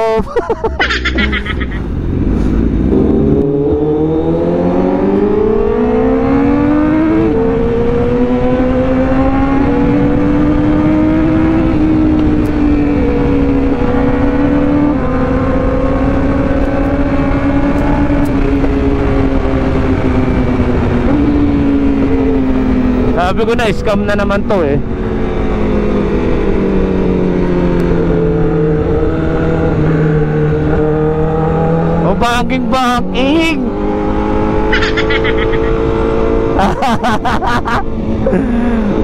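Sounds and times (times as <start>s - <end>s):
motorcycle engine revving: 0.8s - 39.0s.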